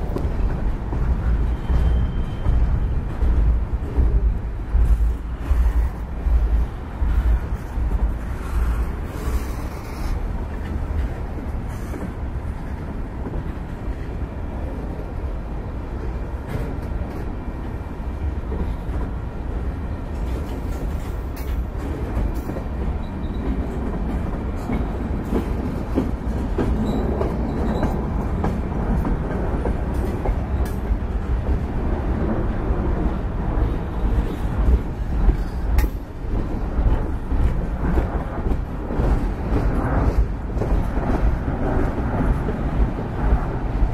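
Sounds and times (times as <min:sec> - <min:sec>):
freight wheels rumbling on rails: 0:00.0 - 0:43.9.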